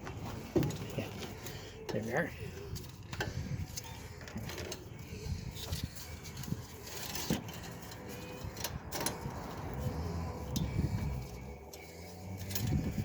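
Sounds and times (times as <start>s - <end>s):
low background rumble: 1.2s - 13.0s
metal clicking and rattling: 2.7s - 13.0s.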